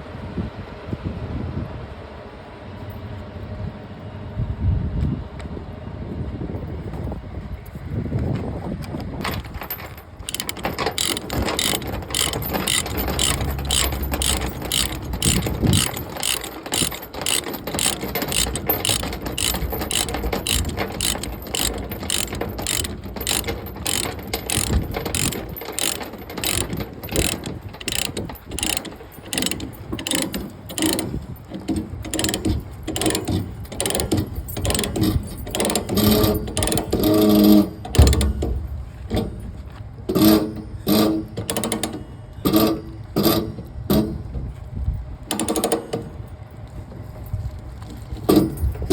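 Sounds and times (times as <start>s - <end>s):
mechanical ratcheting clicks: 10.2s - 37.0s.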